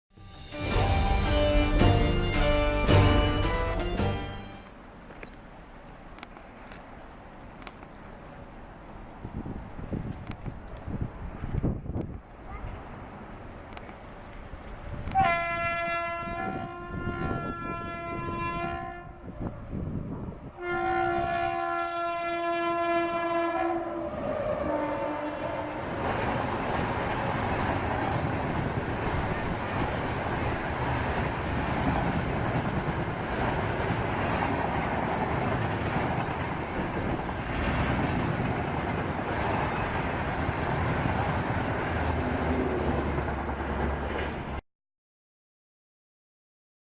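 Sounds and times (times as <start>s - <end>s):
train wheels rumbling on rails: 0.4s - 44.6s
locomotive horn blasts: 15.0s - 19.4s, 20.6s - 25.9s.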